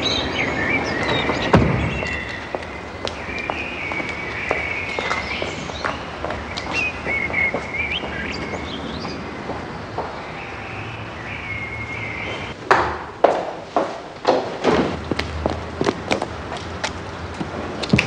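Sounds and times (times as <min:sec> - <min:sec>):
birds chirping: 0:00.0 - 0:12.6
outdoor background noise: 0:00.0 - 0:18.0.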